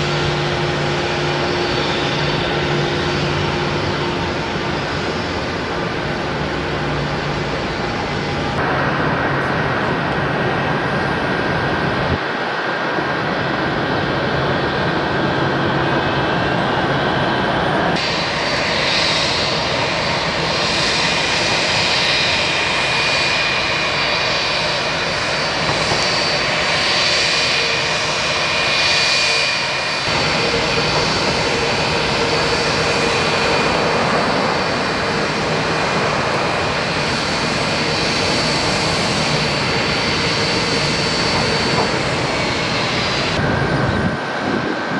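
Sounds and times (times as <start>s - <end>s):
jet engines roaring with whine: 0.0s - 44.9s.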